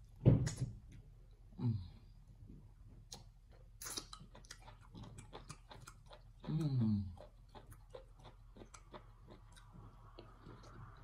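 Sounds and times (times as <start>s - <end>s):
wet chewing and lip smacks: 3.1s - 11.0s.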